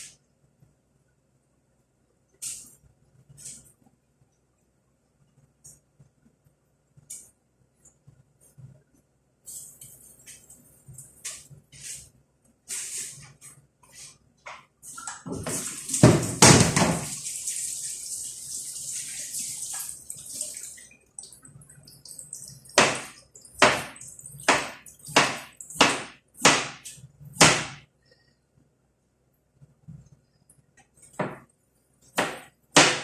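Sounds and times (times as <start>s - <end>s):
kitchen hiss: 11.3s - 14.2s.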